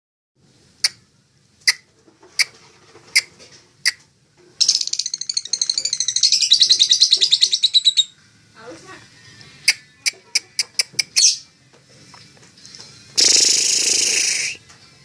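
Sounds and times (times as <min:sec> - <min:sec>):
lovebird chirping and trilling: 0:04.6 - 0:08.2, 0:09.6 - 0:11.5, 0:13.2 - 0:14.6.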